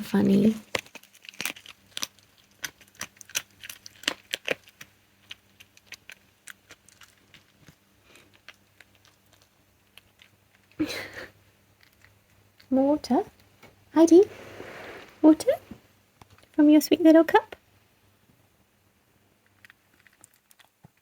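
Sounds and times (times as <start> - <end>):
fox crunching bones: 0.6 - 10.8, 11.8 - 12.7, 19.4 - 21.0
short rustling: 14.1 - 15.9.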